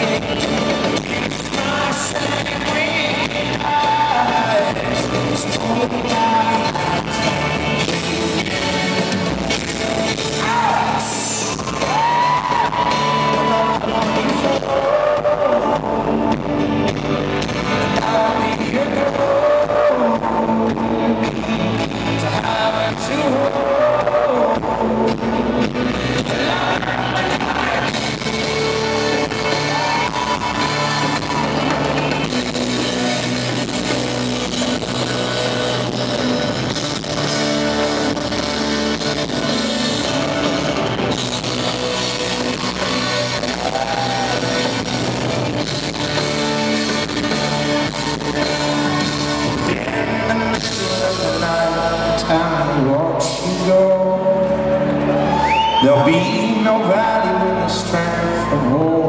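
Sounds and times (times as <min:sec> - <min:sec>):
live folk-rock band: 0:00.0 - 0:59.0
voices singing: 0:26.0 - 0:45.0.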